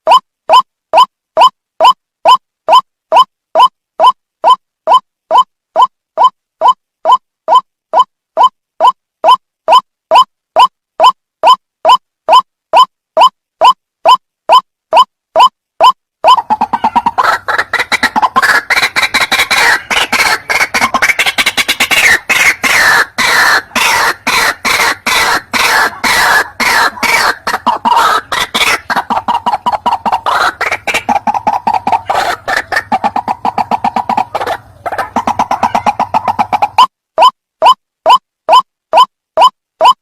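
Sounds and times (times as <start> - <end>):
waterhen calling: 15.4 - 40.0.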